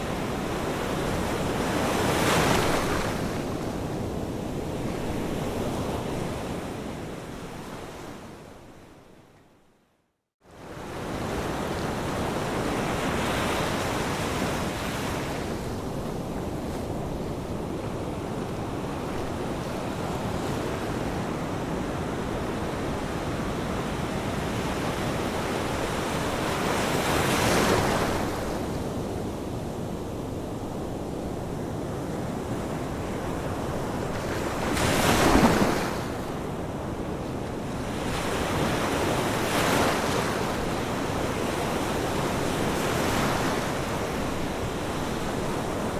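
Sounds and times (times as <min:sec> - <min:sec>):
ocean waves breaking: 0:33.9 - 0:36.3.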